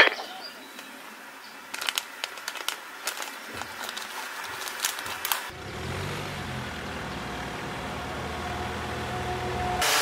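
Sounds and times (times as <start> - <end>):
vehicle engine low rumble: 4.9 - 9.8.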